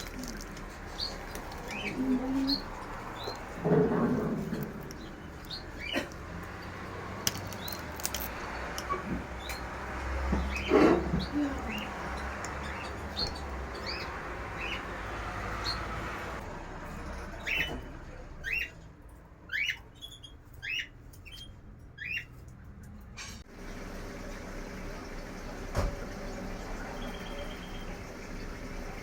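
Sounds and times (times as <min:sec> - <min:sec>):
small birds chirping: 0:00.0 - 0:16.0, 0:19.5 - 0:22.5.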